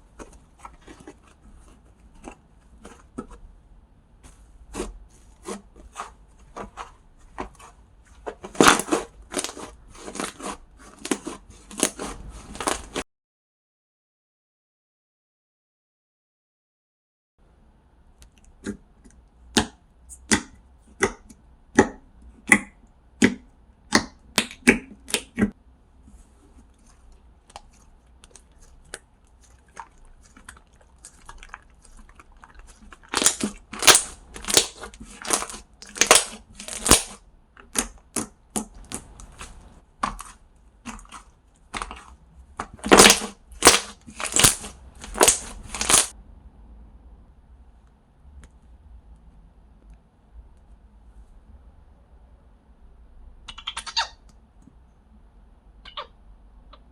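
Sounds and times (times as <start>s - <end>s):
slime crackling squishes: 0.0s - 3.5s, 4.6s - 13.0s, 26.6s - 46.1s.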